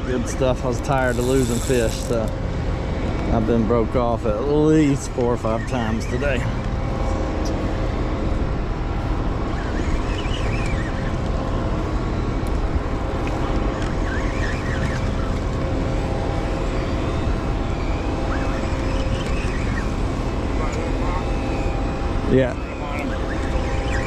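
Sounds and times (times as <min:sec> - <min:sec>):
wind and water hiss: 0:00.0 - 0:05.4
boat engine running: 0:00.0 - 0:24.0.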